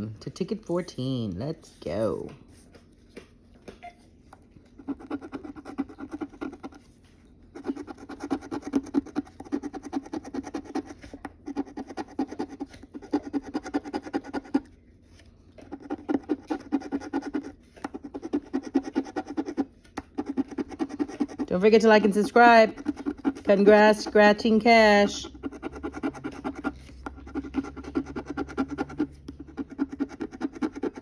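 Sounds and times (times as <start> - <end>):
lottery ticket being scratched: 4.8 - 6.9, 7.6 - 14.7, 15.7 - 31.0.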